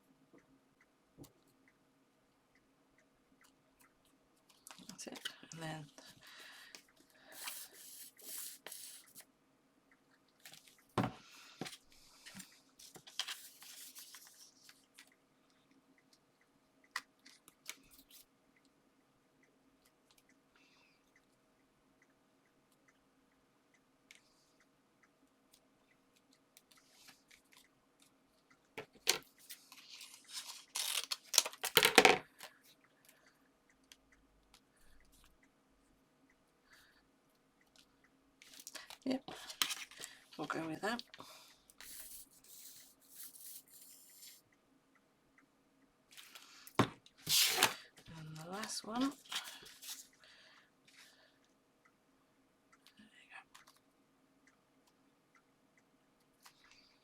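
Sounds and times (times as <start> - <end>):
paper and card rustling: 11.6 - 14.5, 29.5 - 32.0, 47.3 - 47.8.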